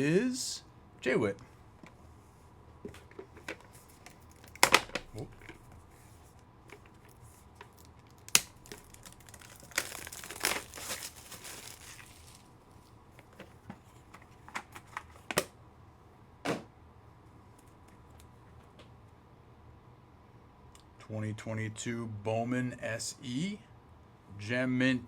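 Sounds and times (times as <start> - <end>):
plastic packaging clicks: 3.4 - 5.6, 6.7 - 12.5
plastic crinkling and tearing: 3.6 - 5.7, 6.7 - 12.6
cards tapping down: 4.5 - 5.6.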